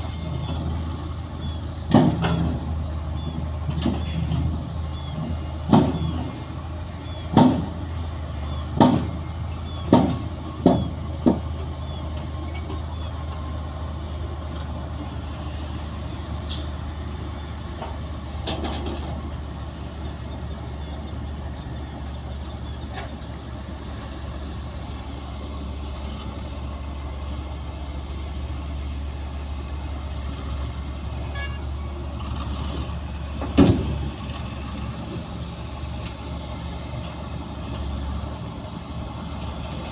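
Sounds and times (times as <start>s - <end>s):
diesel earthmoving machinery running: 0.0s - 39.9s
loud knocks: 7.3s - 7.8s, 8.8s - 9.2s, 9.9s - 11.5s.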